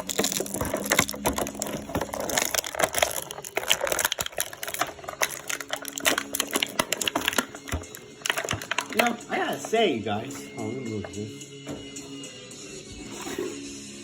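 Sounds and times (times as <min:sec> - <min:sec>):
packaging being torn open: 0:00.0 - 0:09.2.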